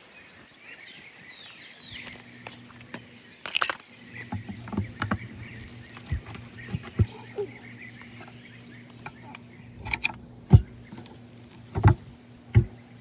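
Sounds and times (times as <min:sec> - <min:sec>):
birds chirping: 0:00.0 - 0:13.0
knocks and clicks: 0:08.9 - 0:12.9.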